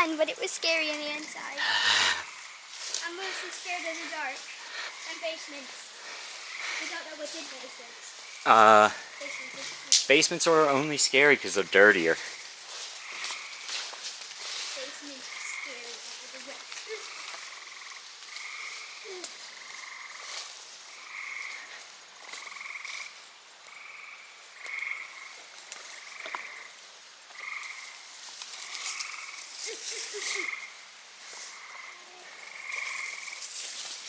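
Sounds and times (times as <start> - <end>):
frogs trilling: 0.0 - 33.8
faint clicks and rustles: 25.4 - 30.6, 31.2 - 34.0.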